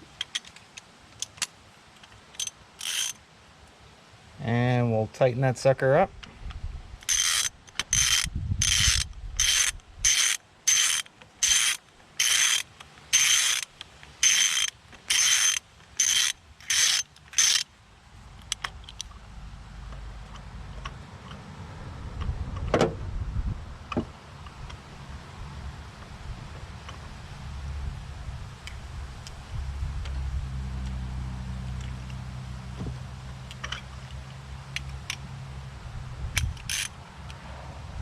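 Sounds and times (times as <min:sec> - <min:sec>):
socket ratchet clicking: 0:02.3 - 0:03.2, 0:07.0 - 0:17.7, 0:36.3 - 0:36.9.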